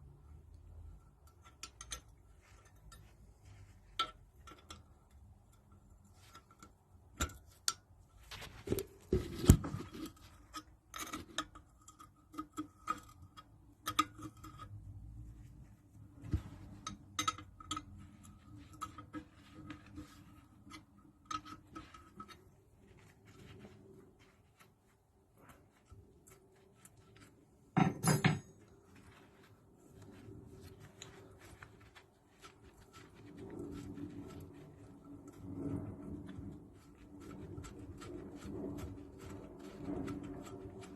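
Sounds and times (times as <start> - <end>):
metal tools clicking and tapping: 1.0 - 3.1, 3.9 - 7.9, 16.3 - 18.1, 27.8 - 28.7
metal clatter: 27.8 - 28.7.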